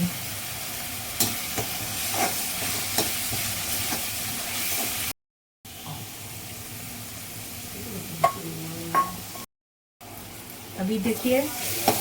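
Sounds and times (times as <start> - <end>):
paste sizzling in oil: 0.0 - 7.7, 10.1 - 12.0.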